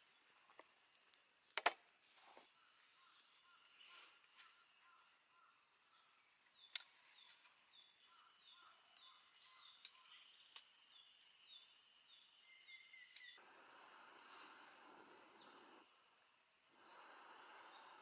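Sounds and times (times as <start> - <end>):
small birds chirping: 0.0 - 18.0
sharp clicks: 0.6 - 2.0.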